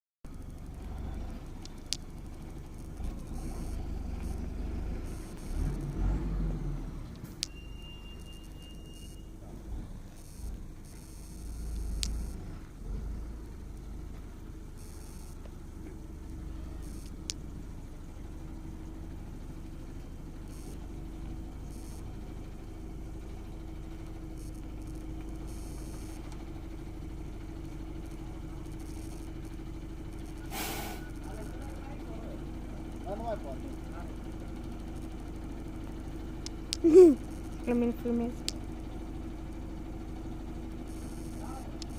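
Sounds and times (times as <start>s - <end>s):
truck engine rumbling: 0.3s - 41.9s
thin high tone: 7.4s - 9.4s
sharp click: 11.7s - 12.3s.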